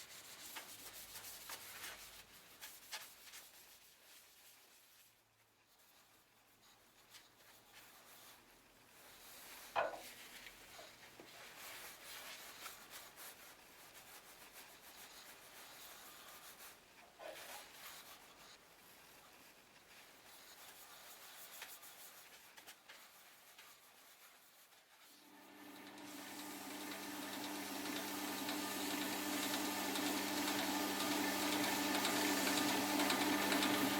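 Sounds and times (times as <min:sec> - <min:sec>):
hand rubbing and scratching: 0:00.0 - 0:25.2.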